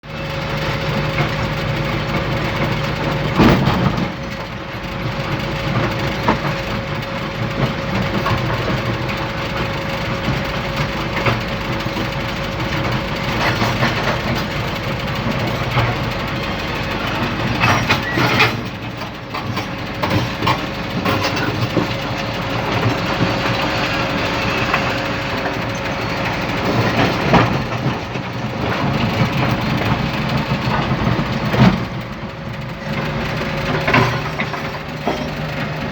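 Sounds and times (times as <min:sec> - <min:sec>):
truck engine running: 0:00.0 - 0:35.9.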